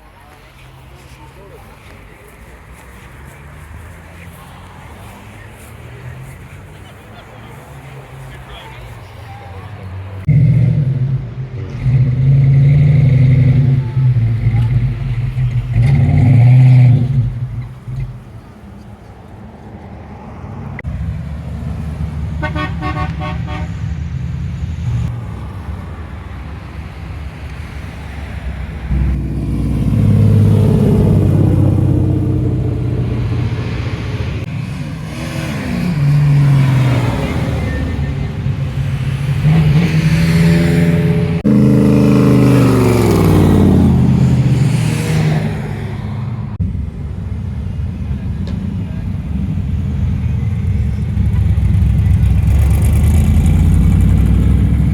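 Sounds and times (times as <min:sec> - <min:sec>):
car engine idling and revving: 0:00.0 - 0:54.9
car horn toot: 0:22.4 - 0:23.8.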